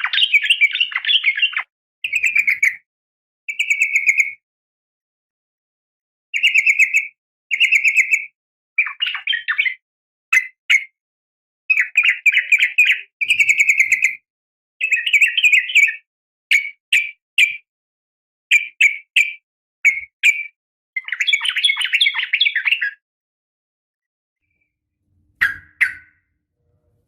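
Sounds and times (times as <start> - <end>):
bulbul chattering call: 25.4 - 26.2.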